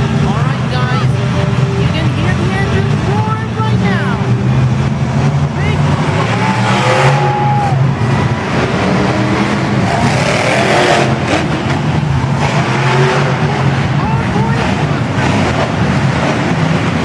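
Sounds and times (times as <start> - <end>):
truck engine droning: 0.0 - 17.0
crowd cheering and whistling: 6.1 - 8.2.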